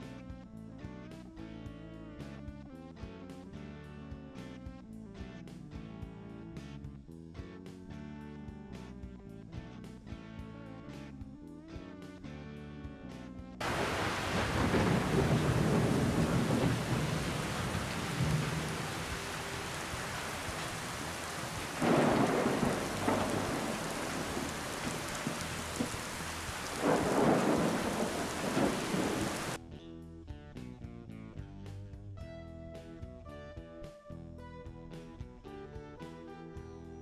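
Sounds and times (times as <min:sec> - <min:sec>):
steady rain falling: 0:13.6 - 0:29.6
thunder rumbling: 0:13.6 - 0:29.6.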